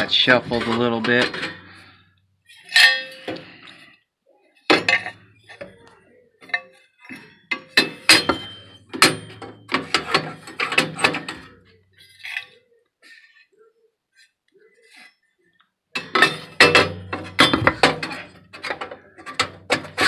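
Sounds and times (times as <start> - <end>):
metal tubes clanking together: 0.0 - 3.9, 4.6 - 12.6, 16.0 - 20.0.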